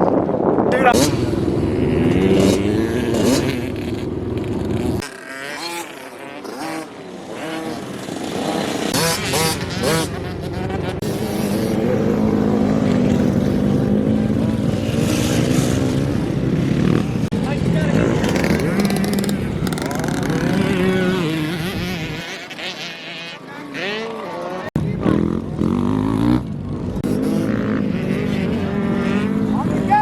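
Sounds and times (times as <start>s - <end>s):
dirt bike engines running: 0.0s - 30.0s
indistinct voices: 6.9s - 30.0s.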